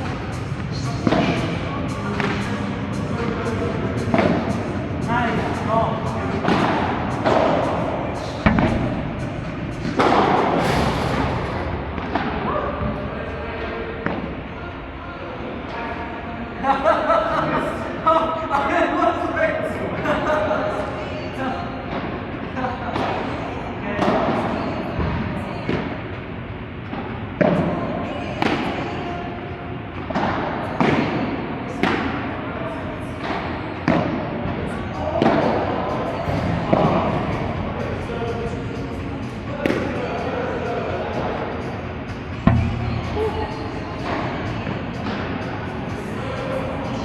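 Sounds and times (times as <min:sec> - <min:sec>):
hall noise: 0:00.0 - 0:47.0
ball struck with echoing thud: 0:08.3 - 0:14.4, 0:36.2 - 0:40.2.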